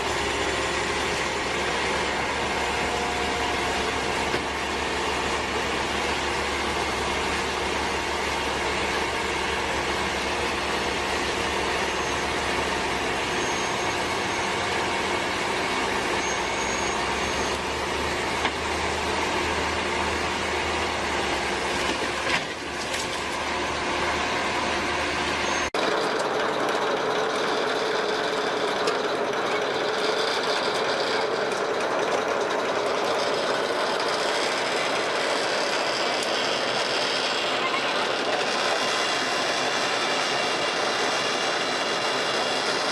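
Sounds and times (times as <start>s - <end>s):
heavy vehicle engine rumble: 0.0s - 25.8s
steady machinery noise: 0.0s - 42.9s.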